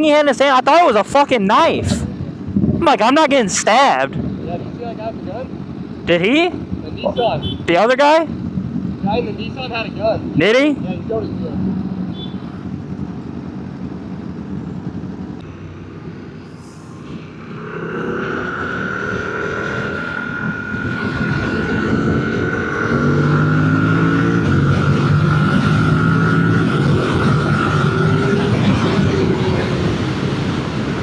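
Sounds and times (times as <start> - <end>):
road and wind noise: 0.0 - 31.0
motorcycle engine: 11.6 - 31.0
steady whine: 13.2 - 31.0.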